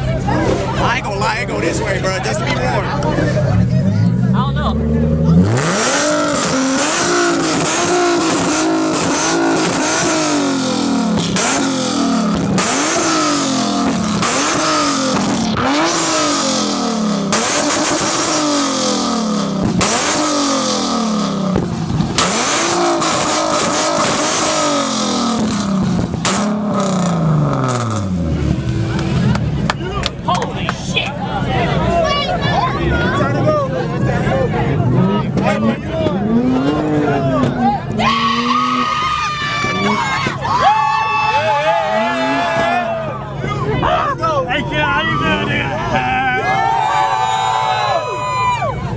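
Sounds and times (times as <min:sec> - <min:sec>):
car engine revving hard: 0:03.2 - 0:29.6, 0:32.7 - 0:39.0, 0:41.6 - 0:43.1
exhaust pops and crackles: 0:06.2 - 0:16.7, 0:19.4 - 0:20.8, 0:21.4 - 0:31.2.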